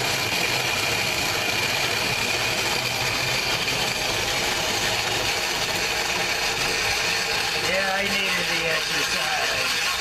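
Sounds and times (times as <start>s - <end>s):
corn grinder grinding and whirring: 0.0s - 10.0s.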